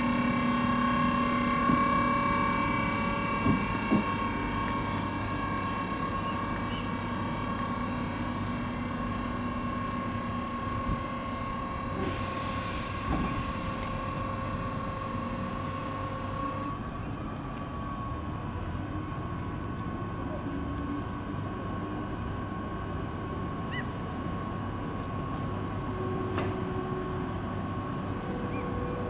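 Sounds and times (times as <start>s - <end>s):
train rumble: 0.0s - 29.0s
hiss: 12.0s - 13.8s.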